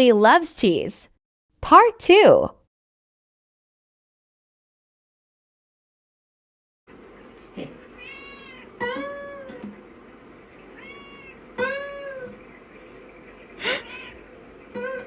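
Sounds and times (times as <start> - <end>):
cat meowing: 7.6 - 9.7, 10.7 - 12.4, 13.6 - 14.2.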